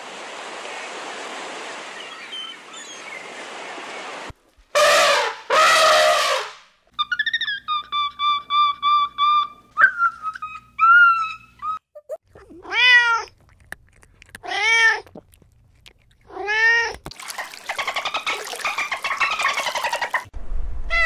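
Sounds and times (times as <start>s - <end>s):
short high calls: 4.8s - 7.2s
cat meowing: 12.4s - 13.4s, 14.4s - 15.2s, 16.3s - 17.0s.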